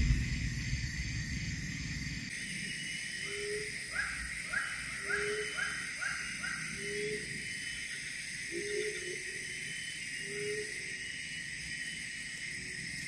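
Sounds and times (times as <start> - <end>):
high drone: 0.0 - 2.3
low rumbling noise: 0.0 - 2.3.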